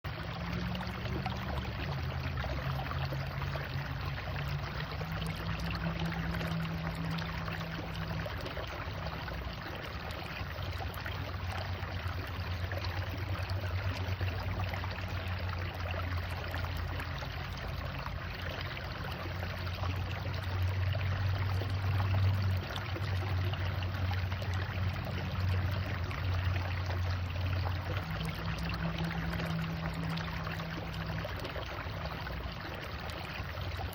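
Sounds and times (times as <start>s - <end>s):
low steady hum: 0.0s - 33.9s.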